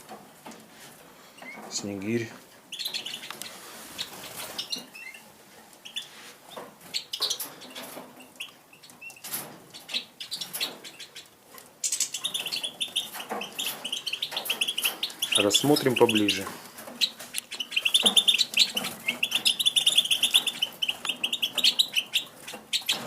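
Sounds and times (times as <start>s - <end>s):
finches chirping: 2.7s - 23.0s
finches fluttering wings: 2.8s - 5.0s.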